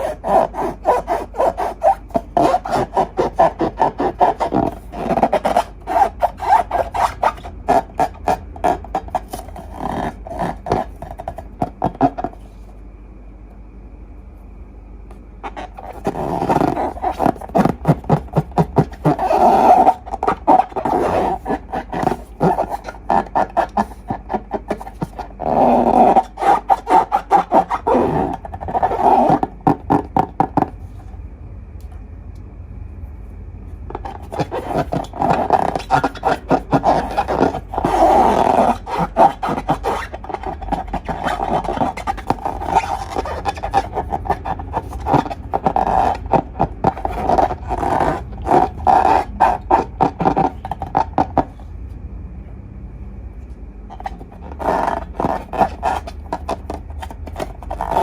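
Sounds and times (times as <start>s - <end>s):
slime squishing by hand: 0.0s - 12.6s, 15.4s - 31.0s, 33.9s - 51.6s.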